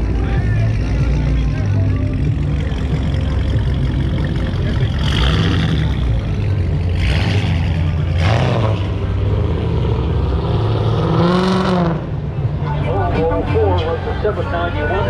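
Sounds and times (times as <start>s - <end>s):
car engines rumbling: 0.0s - 15.0s
short engine revs: 2.6s - 12.1s.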